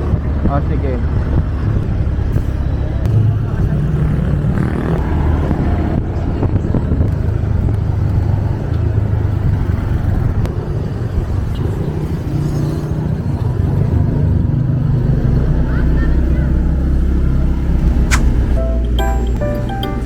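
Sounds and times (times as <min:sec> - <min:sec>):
road noise: 0:00.0 - 0:20.0
vehicle engine running: 0:14.3 - 0:20.0.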